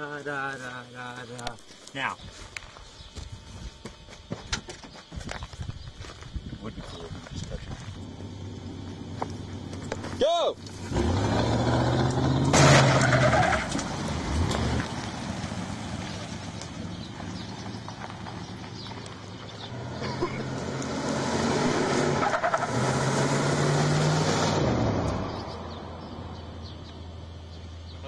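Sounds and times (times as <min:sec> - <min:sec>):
car engine running hard: 0:07.9 - 0:27.4.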